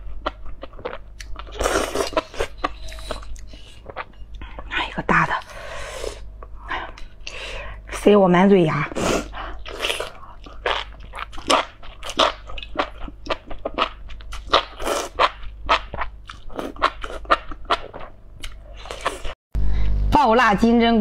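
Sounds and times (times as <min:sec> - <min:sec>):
wet crunchy chewing: 0:09.6 - 0:19.4.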